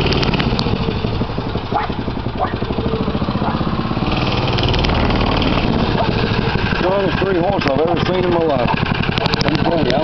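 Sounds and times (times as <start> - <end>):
mini bike engine running: 0.0 - 10.0.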